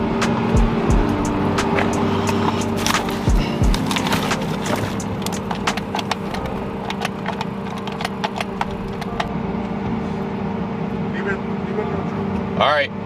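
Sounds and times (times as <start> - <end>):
steady low hum: 0.0 - 13.0
sharp clicks and taps: 1.0 - 9.3.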